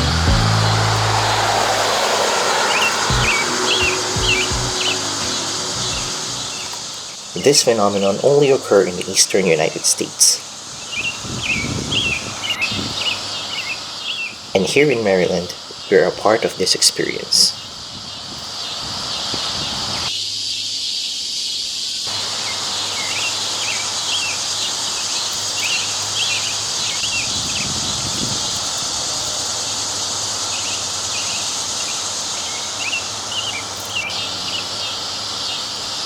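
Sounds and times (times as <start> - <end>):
bird chirps: 0.0 - 7.7
cicadas droning: 0.0 - 36.0.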